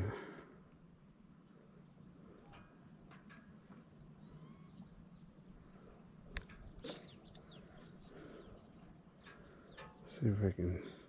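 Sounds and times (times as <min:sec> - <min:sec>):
faint bird chirps: 0:03.8 - 0:11.0.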